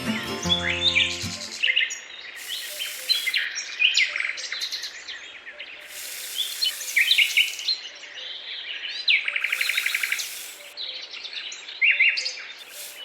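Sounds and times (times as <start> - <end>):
small birds chirping: 1.6 - 7.9, 8.9 - 10.8, 12.4 - 13.0
faint steady hiss: 2.4 - 3.5, 5.8 - 7.8, 9.4 - 10.8, 12.6 - 13.0.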